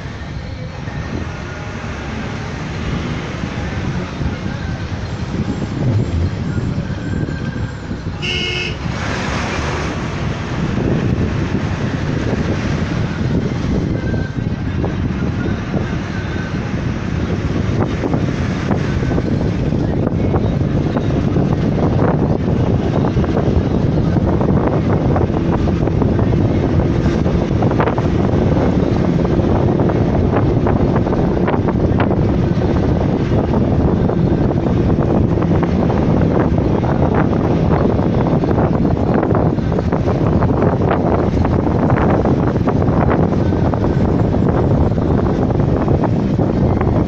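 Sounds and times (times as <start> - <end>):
vehicle rumbling on road: 0.0 - 47.0
wind buffeting microphone: 0.0 - 47.0
short horn toot: 8.2 - 8.9.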